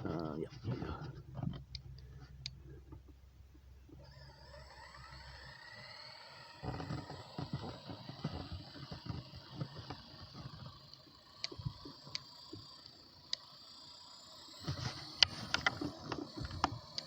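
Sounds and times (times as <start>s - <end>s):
rc helicopter motor whine: 3.9s - 17.0s
sharp ticks: 4.8s - 17.0s.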